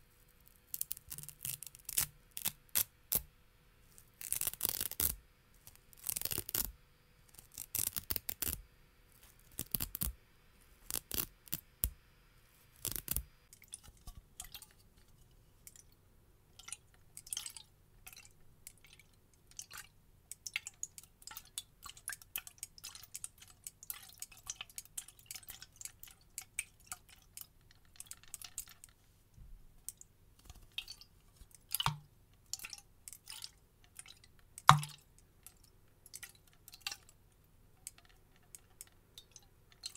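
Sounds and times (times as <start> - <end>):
velcro ripping: 0.8 - 3.2, 4.1 - 5.2, 5.9 - 6.7, 7.4 - 8.6, 9.4 - 10.1, 10.9 - 11.6, 12.8 - 13.2
plastic bottle taps and clicks: 31.8 - 32.1, 34.7 - 35.0.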